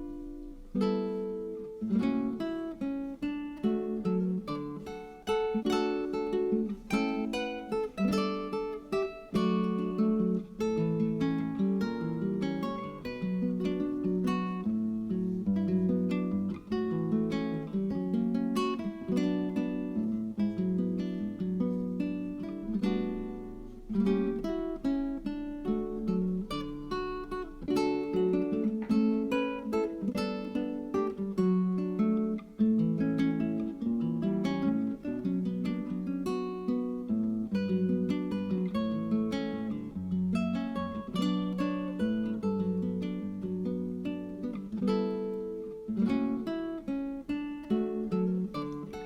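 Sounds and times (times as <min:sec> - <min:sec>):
acoustic guitar chords: 0:00.0 - 0:49.0.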